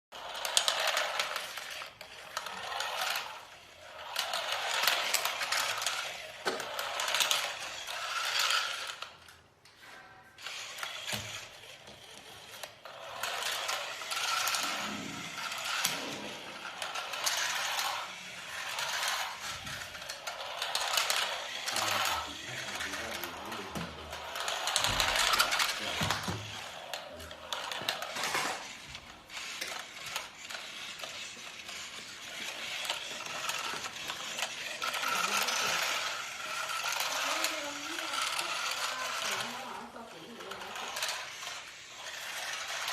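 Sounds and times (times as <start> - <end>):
geared mechanism whirring and clicking: 0.1 - 42.9.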